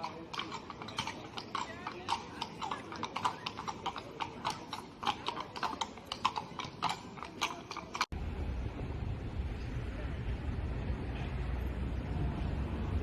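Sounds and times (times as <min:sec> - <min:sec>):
horse hooves clip-clopping on street: 0:00.0 - 0:08.2.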